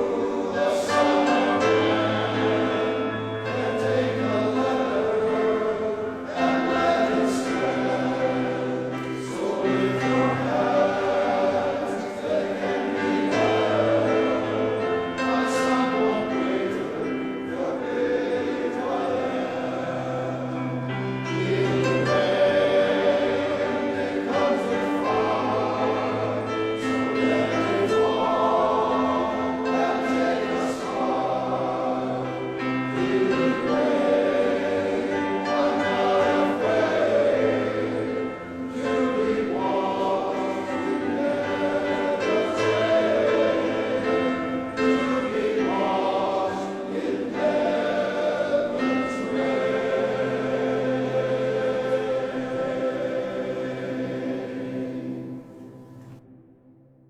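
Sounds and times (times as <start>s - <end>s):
male choir singing gospel: 0.0s - 56.2s.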